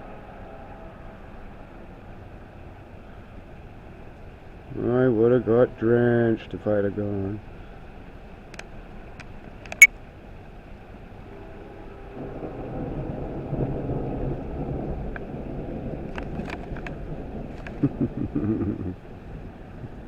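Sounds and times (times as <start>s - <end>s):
heavy rain: 12.2s - 20.0s.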